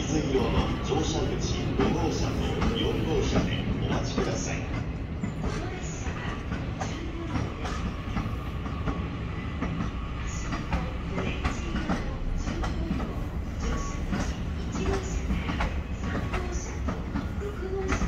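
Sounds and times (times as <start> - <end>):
train wheels clicking over rail joints: 0.0 - 18.0.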